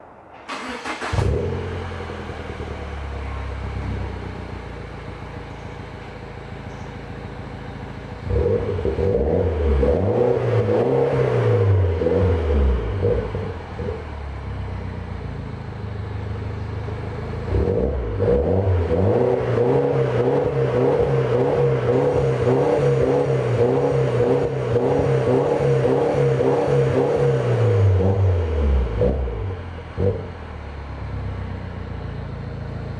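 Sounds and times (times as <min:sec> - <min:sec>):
car engine idling and revving: 0:00.0 - 0:32.9.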